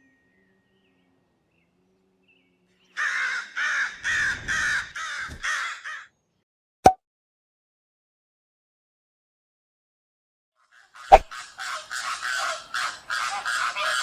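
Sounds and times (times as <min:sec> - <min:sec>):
bird harsh calls: 0:02.8 - 0:06.1, 0:10.7 - 0:14.0.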